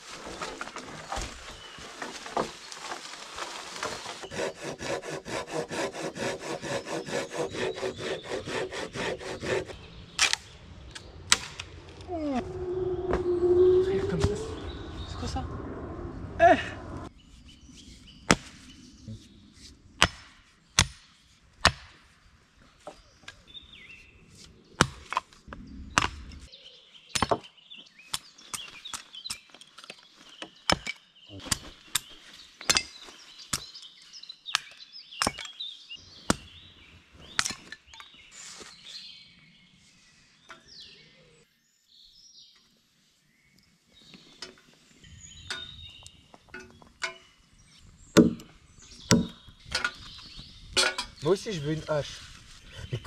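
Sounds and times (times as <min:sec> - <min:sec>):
axe chopping dry wood: 0:20.0 - 0:22.0, 0:24.8 - 0:25.4, 0:48.2 - 0:48.5, 0:49.1 - 0:49.4.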